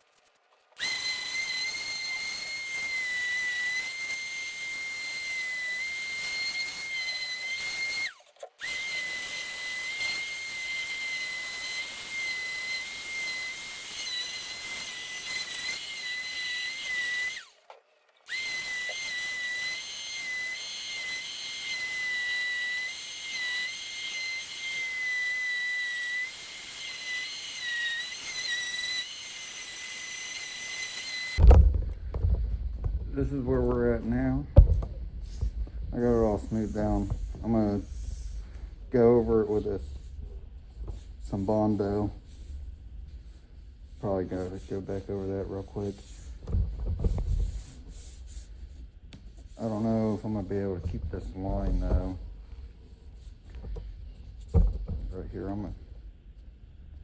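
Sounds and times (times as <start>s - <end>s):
power sander whining: 0.8s - 17.6s, 18.3s - 34.4s.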